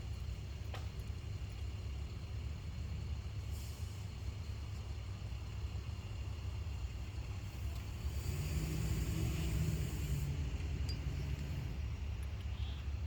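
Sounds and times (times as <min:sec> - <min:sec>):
low steady rumble: 0:00.0 - 0:13.0
car engine hum passing: 0:07.5 - 0:12.3.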